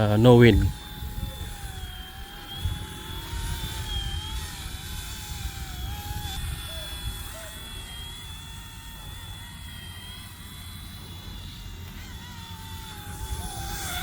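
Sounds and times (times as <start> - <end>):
rc helicopter motor whining: 0.0 - 14.0
wind rumble on microphone: 0.6 - 8.2.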